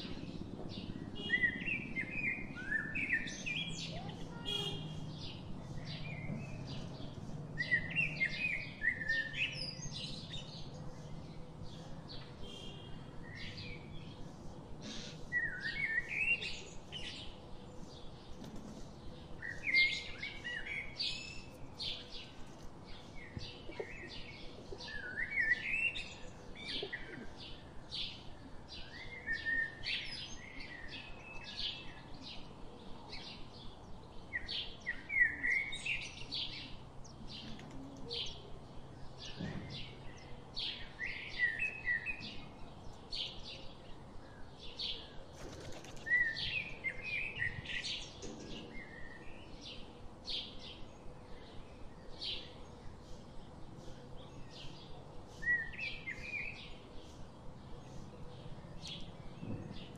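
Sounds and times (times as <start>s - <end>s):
birds twittering: 0.0s - 32.5s
small birds high chirps: 0.0s - 59.9s.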